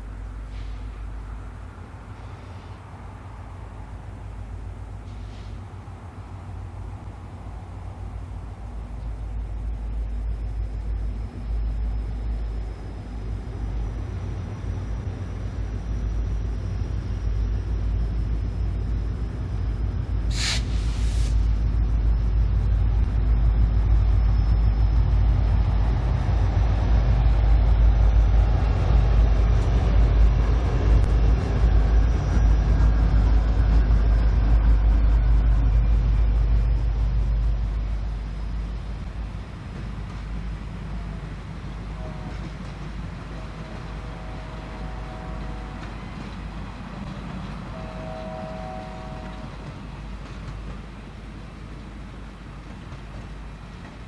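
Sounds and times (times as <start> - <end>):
diesel locomotives rumbling past: 0.0 - 54.0
hiss of air: 0.4 - 1.2, 2.1 - 3.0, 5.0 - 5.9, 20.3 - 21.6.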